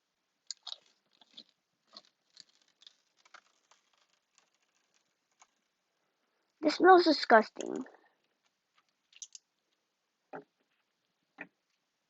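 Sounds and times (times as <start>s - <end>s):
clear tape crinkling: 0.4s - 5.8s, 7.5s - 9.8s.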